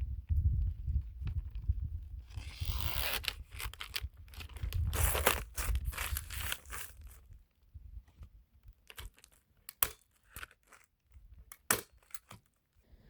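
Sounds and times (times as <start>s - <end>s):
roofing underlayment crinkling: 2.4s - 7.3s, 8.8s - 9.4s.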